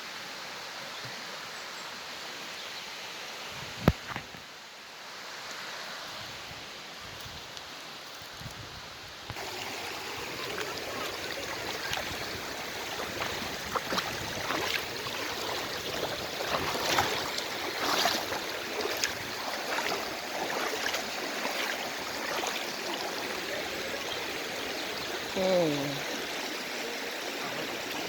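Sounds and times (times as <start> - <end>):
stream rushing over rocks: 3.0 - 28.0
water splashes and clatters: 9.3 - 24.6.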